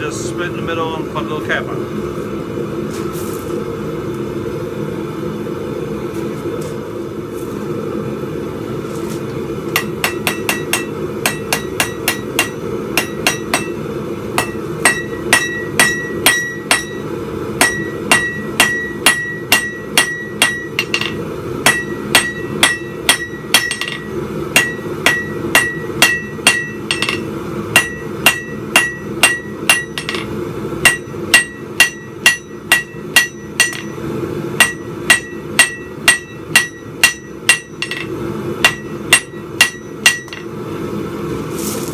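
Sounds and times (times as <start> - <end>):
hammer striking steel on anvil: 9.7 - 13.8, 14.4 - 40.6.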